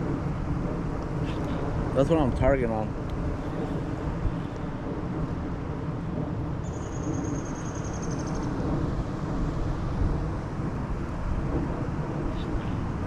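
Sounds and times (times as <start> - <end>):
low rumbling river background: 0.0 - 13.0
faint high pulsing trill: 4.8 - 10.3.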